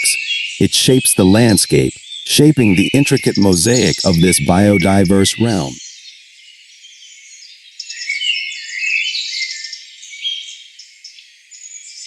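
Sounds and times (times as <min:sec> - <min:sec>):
high chirps and whistled notes: 0:00.0 - 0:05.8.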